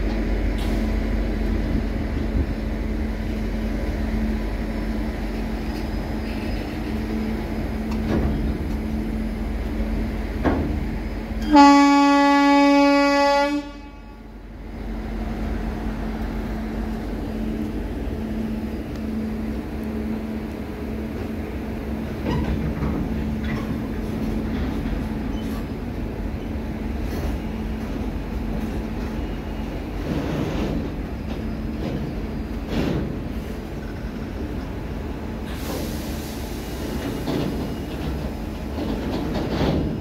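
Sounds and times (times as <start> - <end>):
freight wagons rumbling on rails: 0.0 - 40.0
locomotive horn blast: 11.4 - 14.3
wheels clicking over rail joints: 37.0 - 40.0.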